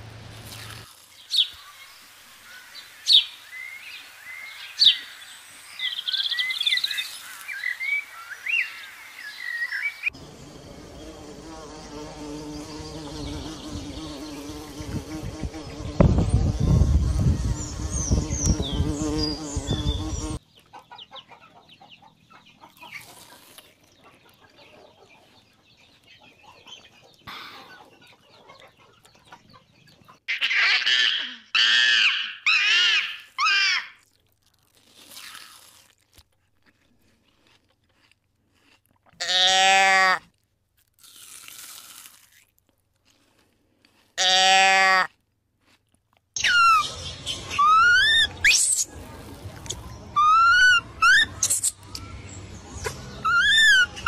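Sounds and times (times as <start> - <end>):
bumblebee buzzing: 10.2 - 20.4.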